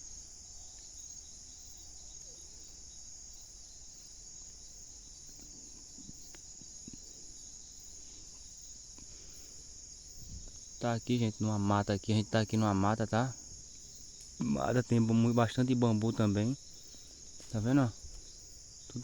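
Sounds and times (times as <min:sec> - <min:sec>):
crickets chirping: 0:00.0 - 0:19.0
faint clicks: 0:05.3 - 0:07.1, 0:13.7 - 0:14.5.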